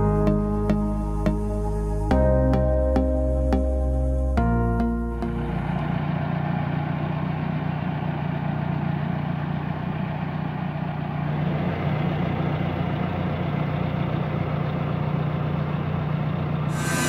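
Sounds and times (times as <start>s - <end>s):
tractor engine running: 5.3s - 16.7s.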